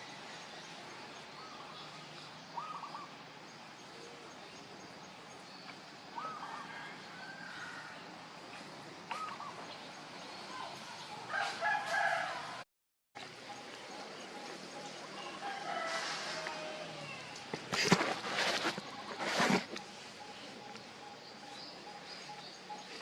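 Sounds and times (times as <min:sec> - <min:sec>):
background hiss: 0:13.3 - 0:23.0.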